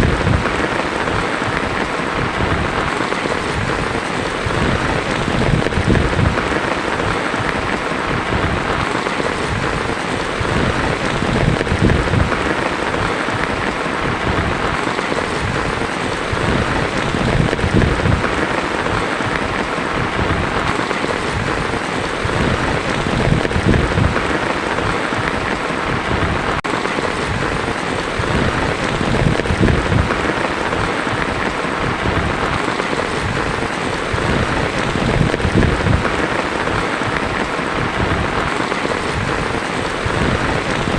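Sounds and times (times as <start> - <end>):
heavy rain on a tin roof: 0.0 - 40.9
thunder rumbling: 0.0 - 40.9.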